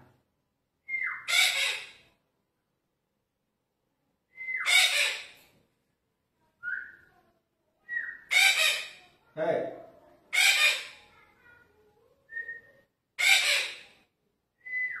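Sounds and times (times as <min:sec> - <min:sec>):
parakeet calling: 0:01.0 - 0:02.1, 0:04.6 - 0:05.4, 0:08.0 - 0:09.0, 0:10.3 - 0:11.0, 0:13.2 - 0:14.0
parakeet squawk: 0:01.0 - 0:02.1, 0:04.6 - 0:05.4, 0:08.2 - 0:09.1, 0:10.3 - 0:11.1, 0:13.2 - 0:14.0.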